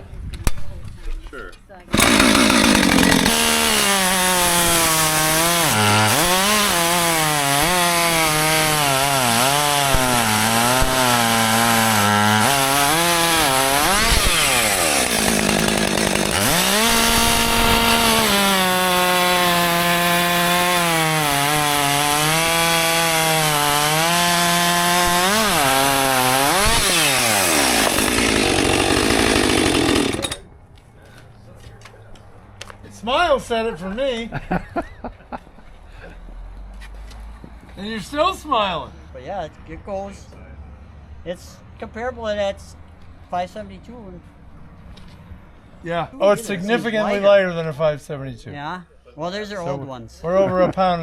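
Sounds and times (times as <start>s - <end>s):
chainsaw cutting wood: 1.9s - 30.5s.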